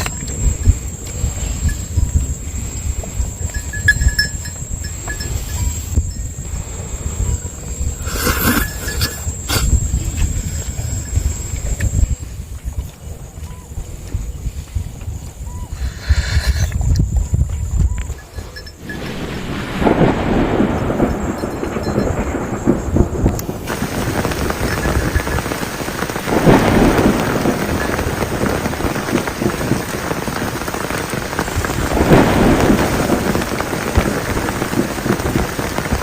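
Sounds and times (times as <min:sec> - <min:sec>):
heavy rain: 0:00.0 - 0:12.2, 0:18.7 - 0:36.0
thunder: 0:18.8 - 0:36.0.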